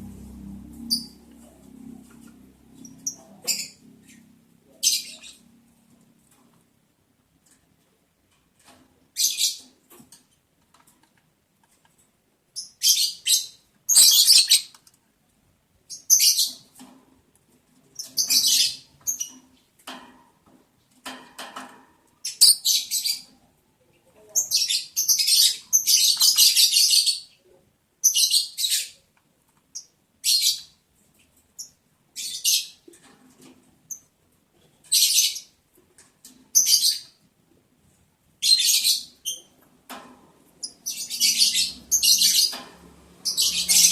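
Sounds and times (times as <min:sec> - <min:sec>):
lovebirds chirping: 0:00.0 - 0:05.8, 0:12.6 - 0:14.7, 0:22.2 - 0:23.3, 0:40.6 - 0:43.9.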